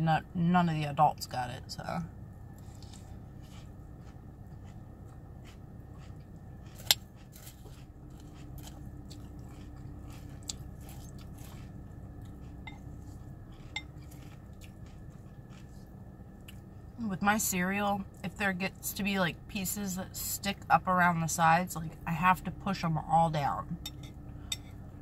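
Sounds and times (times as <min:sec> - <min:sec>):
crunchy cereal being chewed: 0:02.6 - 0:16.7
metal spoon clinking on bowl: 0:23.8 - 0:24.7.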